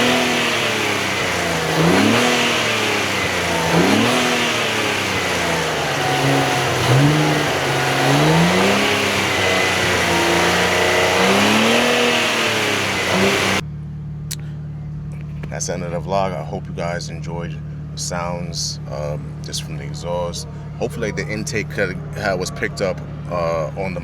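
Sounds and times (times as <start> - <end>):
car engine revving and shifting: 0.0 - 13.6.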